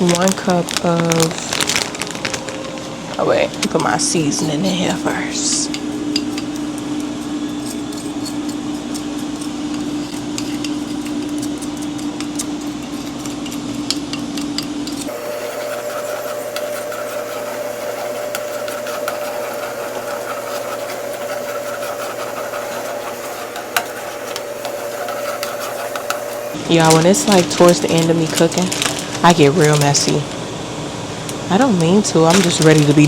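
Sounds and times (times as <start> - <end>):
mechanical hum: 0.0 - 33.0
spoon stirring and scraping pot: 3.6 - 28.6.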